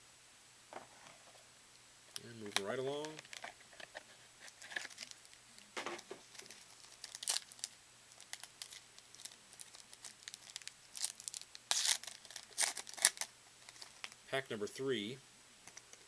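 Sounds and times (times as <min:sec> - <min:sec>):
wrapper crinkling: 0:02.2 - 0:14.2.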